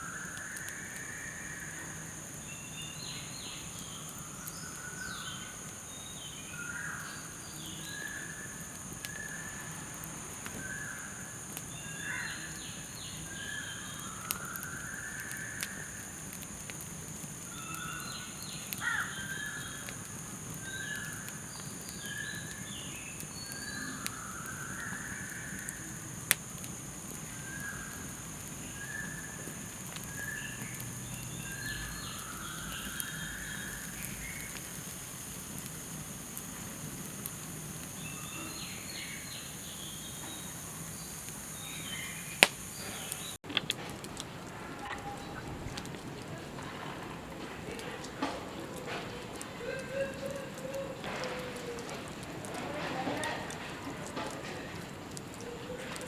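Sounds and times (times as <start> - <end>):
night insects droning: 0.0 - 43.4
campfire crackling and popping: 0.0 - 56.0.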